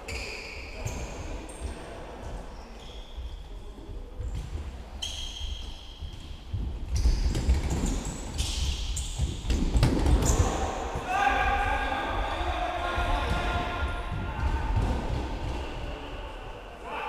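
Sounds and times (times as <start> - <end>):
shoe squeaks: 0.0 - 1.8, 2.6 - 3.5, 4.9 - 9.5.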